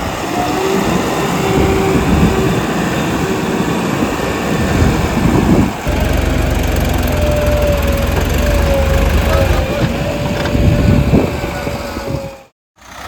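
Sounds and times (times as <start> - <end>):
engine low hum: 5.8 - 11.4
diesel engine running under load: 5.8 - 13.0.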